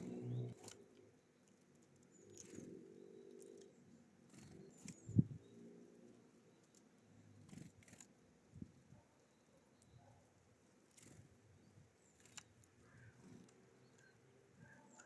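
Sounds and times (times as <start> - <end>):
low droning tone: 0.0 - 0.6
small birds chirping: 0.0 - 15.0.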